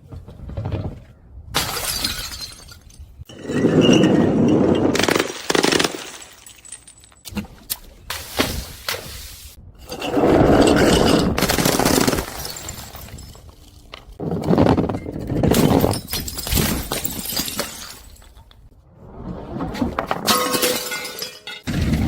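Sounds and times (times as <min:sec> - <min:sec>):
glass bottles shattering: 0:01.6 - 0:07.3, 0:09.9 - 0:14.2, 0:15.5 - 0:18.6, 0:20.2 - 0:22.0.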